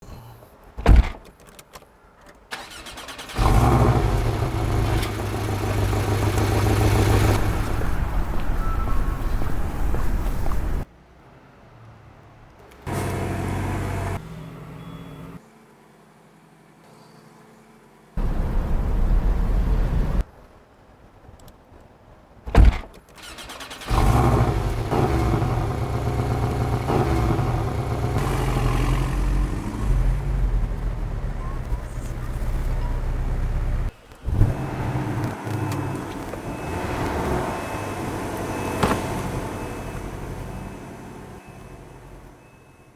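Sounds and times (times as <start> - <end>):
thump: 0.8 - 1.3, 22.5 - 23.0, 38.8 - 39.2
car engine idling: 3.4 - 7.4, 23.9 - 33.9.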